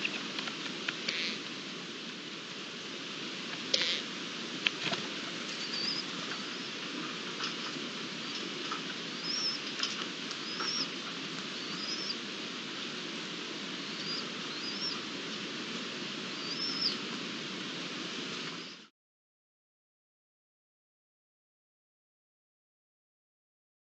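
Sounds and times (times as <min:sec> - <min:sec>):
outdoor microphone hiss: 0:00.0 - 0:18.9
small bird chirping: 0:05.5 - 0:06.7, 0:09.1 - 0:09.7, 0:10.4 - 0:11.0, 0:11.6 - 0:12.2, 0:13.8 - 0:15.0, 0:16.4 - 0:17.0.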